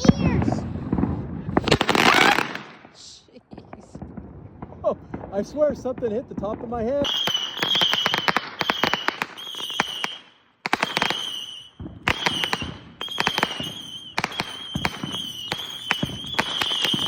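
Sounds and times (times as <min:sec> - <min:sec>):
firework crackling pops: 0:00.0 - 0:05.7, 0:06.4 - 0:17.0
firework whistle: 0:01.9 - 0:02.6, 0:07.0 - 0:17.0.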